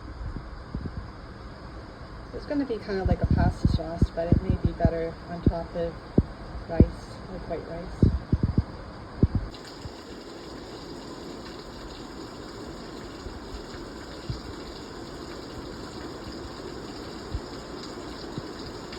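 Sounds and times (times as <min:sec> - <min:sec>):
water rushing: 0:09.5 - 0:18.9.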